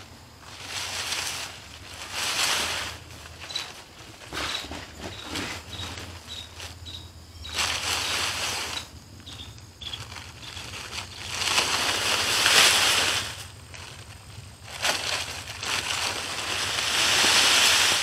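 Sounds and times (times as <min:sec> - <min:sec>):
plastic tarp rustling and scraping: 0:00.0 - 0:06.8, 0:07.4 - 0:18.0.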